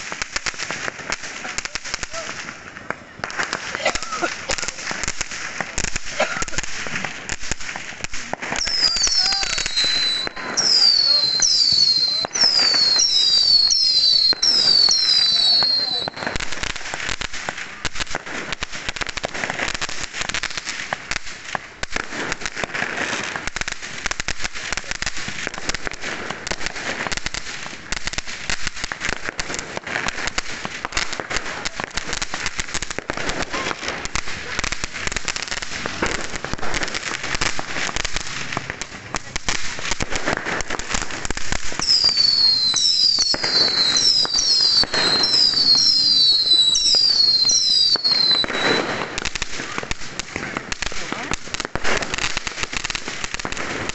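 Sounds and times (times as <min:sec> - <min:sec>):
fireworks and firecrackers banging: 0:00.0 - 0:53.9
high falling whistles: 0:08.6 - 0:16.2.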